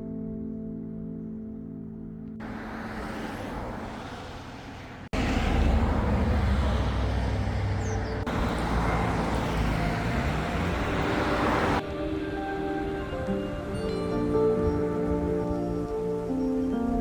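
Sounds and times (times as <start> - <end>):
vehicle engine passing by: 2.4 - 11.8
road traffic noise: 2.4 - 16.9.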